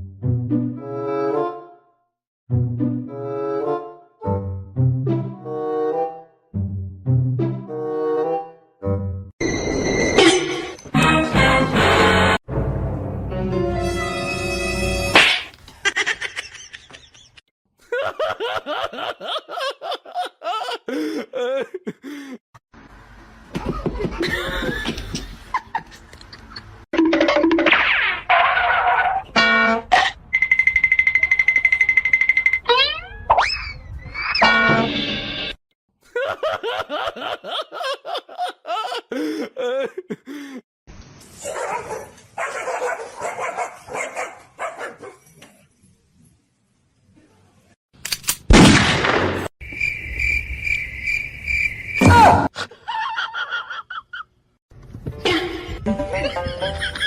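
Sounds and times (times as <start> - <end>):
person laughing: 15.8 - 22.4, 23.5 - 26.8, 36.0 - 40.6, 52.6 - 54.3, 55.2 - 57.0
dog barking: 41.4 - 45.2.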